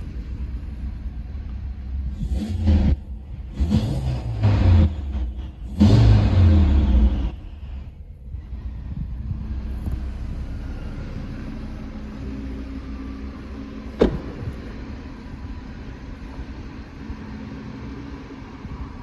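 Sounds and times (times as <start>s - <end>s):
car engine idling: 0.0s - 19.0s
car door shutting: 13.9s - 14.8s.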